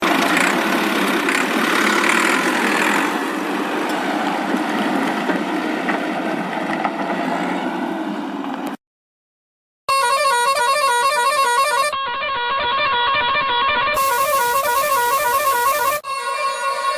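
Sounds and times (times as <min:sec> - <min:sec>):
toy tractor engine drone: 0:00.0 - 0:04.0, 0:13.9 - 0:16.9.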